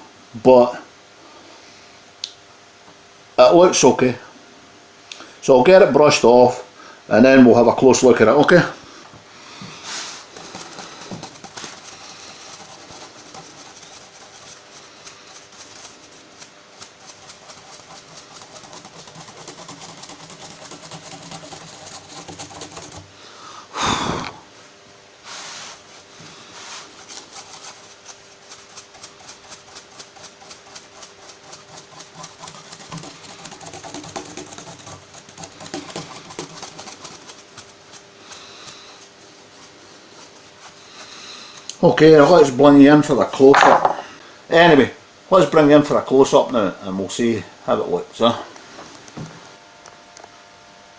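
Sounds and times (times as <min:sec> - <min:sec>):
brush sweeping over fretboard: 0:09.7 - 0:23.2, 0:25.2 - 0:43.4.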